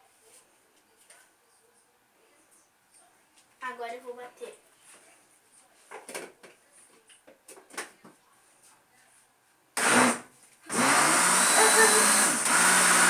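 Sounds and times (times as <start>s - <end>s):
blender whirring: 9.8s - 13.0s.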